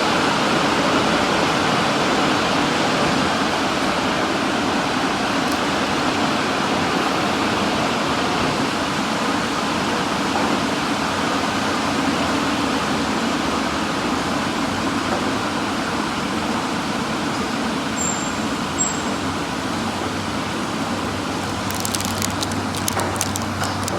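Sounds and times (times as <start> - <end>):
faint rapid clicks: 21.4 - 23.9.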